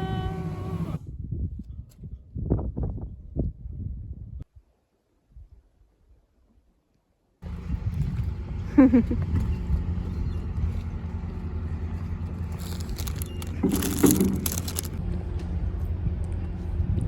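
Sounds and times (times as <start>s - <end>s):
engine droning: 7.4s - 17.0s.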